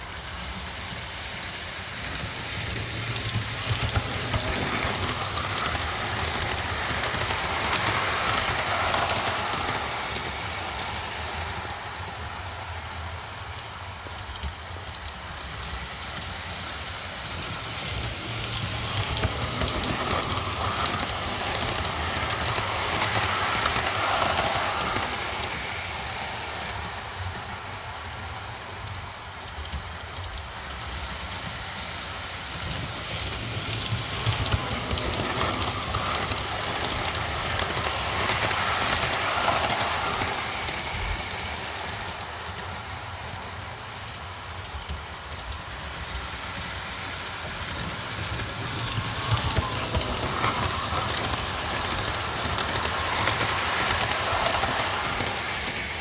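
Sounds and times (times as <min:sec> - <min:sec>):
model train rolling on track: 0:00.0 - 0:56.0.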